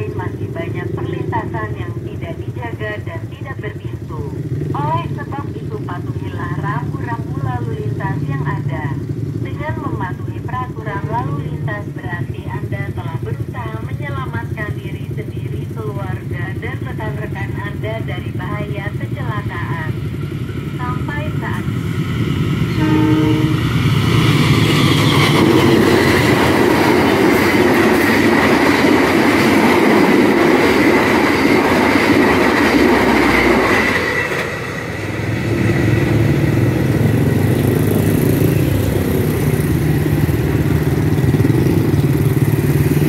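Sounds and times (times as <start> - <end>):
motorcycle engines: 0.0 - 43.0
train wheels rumbling on rails: 18.8 - 43.0.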